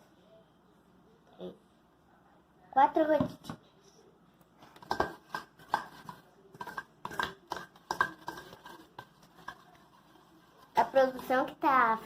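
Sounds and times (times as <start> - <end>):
utensil stirring slime in a pot: 4.5 - 12.0.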